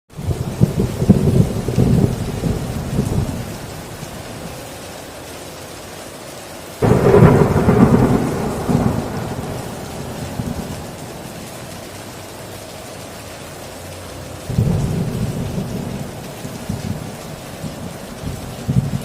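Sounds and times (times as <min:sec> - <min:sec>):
heavy rain on a tin roof: 0:00.1 - 0:19.0
thunder rumbling: 0:00.2 - 0:04.7, 0:06.8 - 0:12.2, 0:14.4 - 0:19.0.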